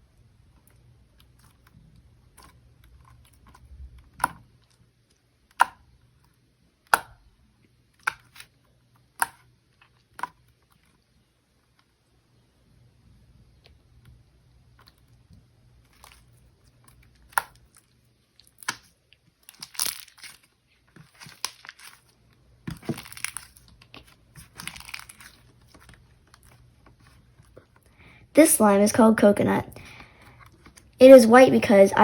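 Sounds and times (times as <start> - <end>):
slime squishing and crackling: 15.8 - 27.8.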